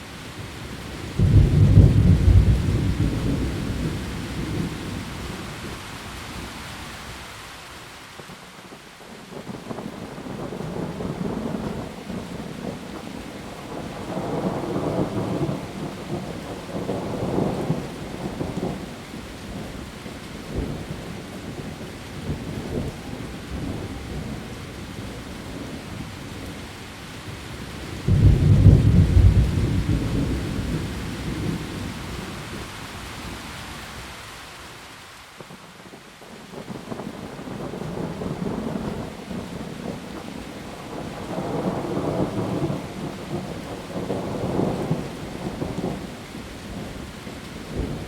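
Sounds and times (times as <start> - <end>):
heavy rain on leaves: 0.0 - 48.0
loud thunderclap: 1.2 - 4.7, 28.1 - 31.9
thunder rolling: 1.2 - 4.7, 28.1 - 31.9.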